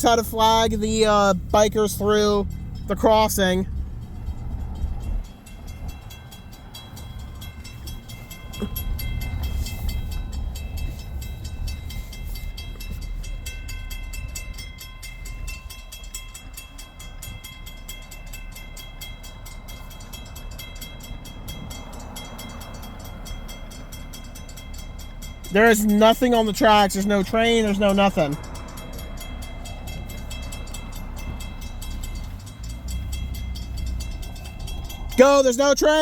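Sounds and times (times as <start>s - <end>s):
railroad crossing bells ringing: 0.0s - 36.0s
low rumble: 3.6s - 13.0s, 28.4s - 35.2s.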